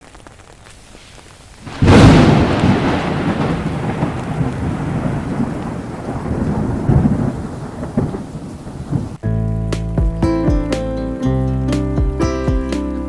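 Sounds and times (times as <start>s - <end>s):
rain: 0.0s - 9.2s
rolling thunder rumble: 1.0s - 9.2s
loud thunderclap: 1.6s - 9.2s.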